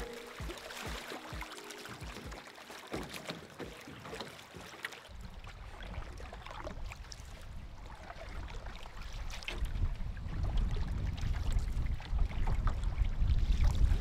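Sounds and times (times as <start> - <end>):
water splashing against hull: 0.0 - 14.0
wind rumble on microphone: 5.2 - 14.0.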